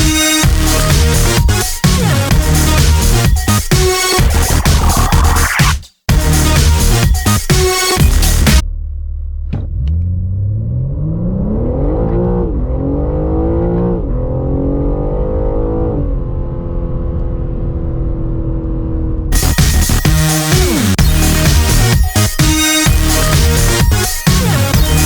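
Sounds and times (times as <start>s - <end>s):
car engine accelerating hard: 8.6s - 19.6s.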